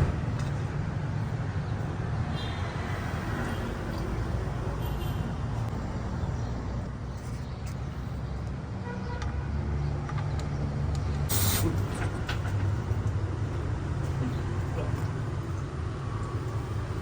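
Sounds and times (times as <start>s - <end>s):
vehicle engine humming: 10.1s - 17.0s.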